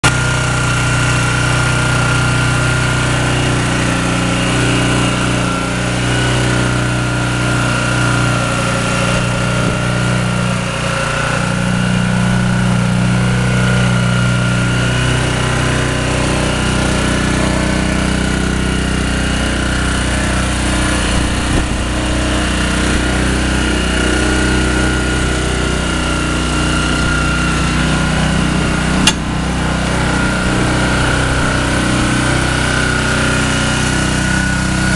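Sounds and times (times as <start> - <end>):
pressure washer engine running: 0.0 - 34.9.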